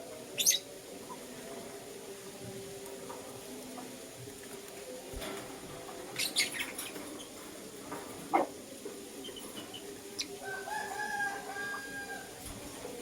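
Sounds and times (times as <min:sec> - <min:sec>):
lovebirds chirping and calling: 0:00.3 - 0:00.8, 0:06.1 - 0:07.5, 0:09.2 - 0:10.5.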